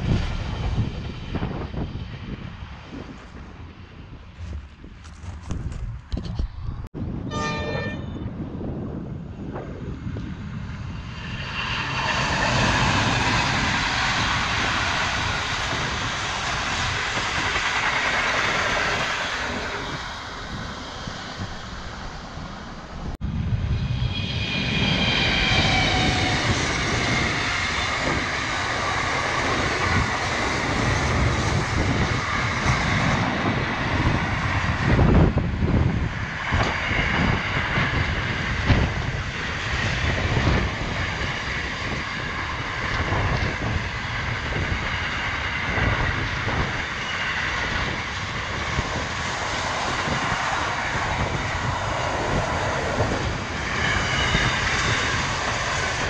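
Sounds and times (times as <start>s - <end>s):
diesel locomotive engine: 0.0s - 56.0s
train wheels rolling on rails: 11.0s - 23.2s, 24.2s - 56.0s.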